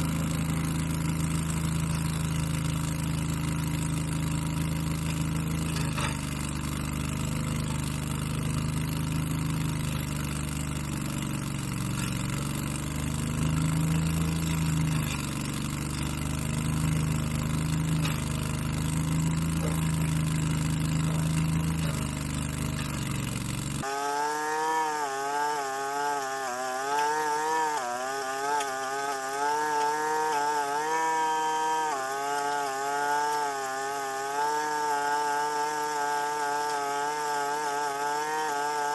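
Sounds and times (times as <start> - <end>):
low steady engine: 0.0 - 23.9.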